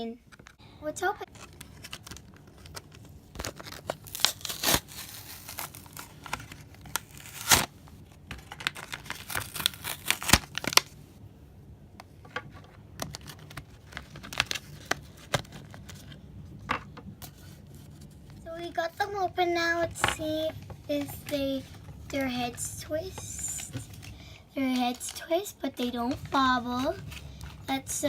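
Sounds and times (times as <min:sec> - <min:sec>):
packaging tearing and crinkling: 0:01.3 - 0:11.0, 0:13.0 - 0:16.2.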